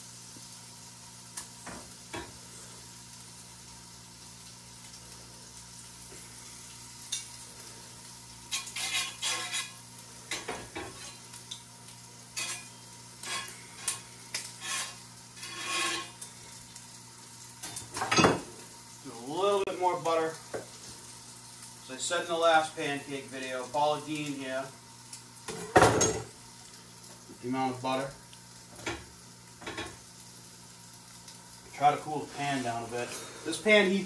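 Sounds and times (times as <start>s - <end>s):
sausages sizzling in pans: 0.0s - 34.0s
metal utensil scraping a pan: 8.5s - 11.2s, 12.4s - 16.3s.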